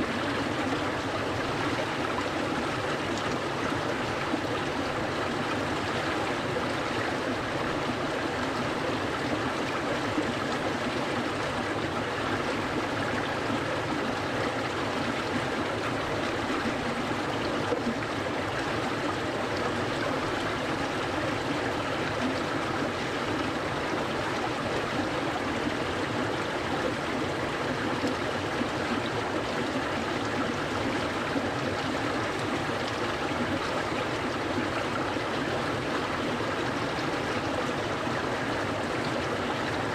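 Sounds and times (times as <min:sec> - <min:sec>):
water stream flowing: 0:00.0 - 0:39.9.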